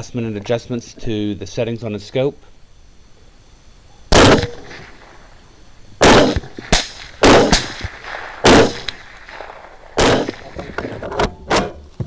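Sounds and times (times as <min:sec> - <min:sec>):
faint cracks: 0:02.4 - 0:12.0
suppressed rifle shots: 0:04.1 - 0:05.4, 0:06.0 - 0:11.9.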